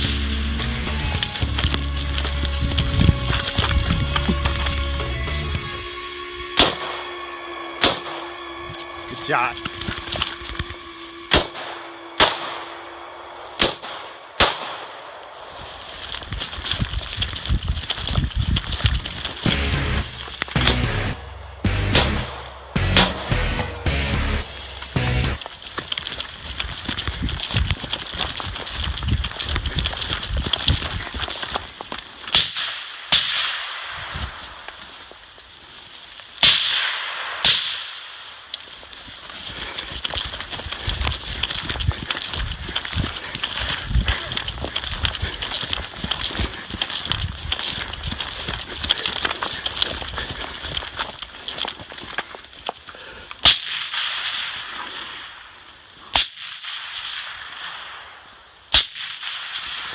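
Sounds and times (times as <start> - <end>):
gunshots with echo: 6.5 - 7.2, 7.8 - 8.4, 11.3 - 12.9, 13.5 - 15.5, 19.5 - 25.4.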